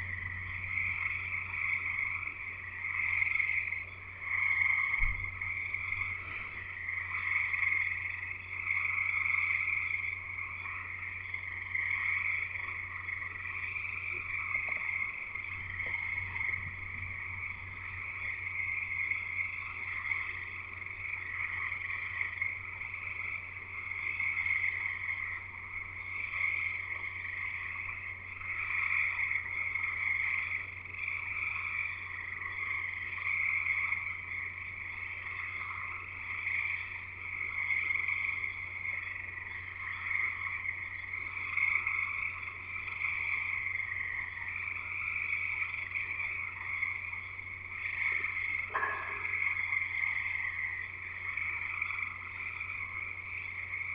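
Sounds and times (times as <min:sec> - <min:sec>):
chorus of frogs trilling: 0:00.0 - 0:53.9
steady low hum: 0:00.0 - 0:53.9.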